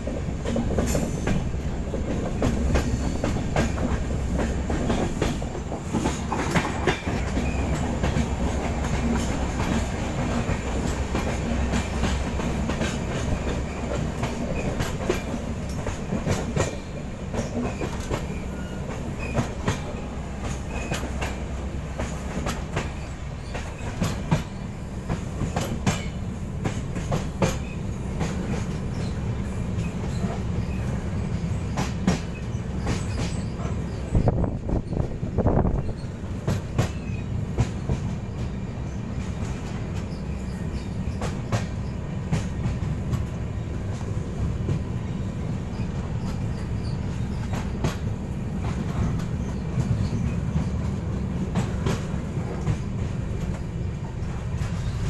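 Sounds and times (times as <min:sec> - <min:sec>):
wheels clacking over rail joints: 0:00.0 - 0:38.6
train coach rumble: 0:00.0 - 0:55.0
train rushing: 0:00.0 - 0:55.0.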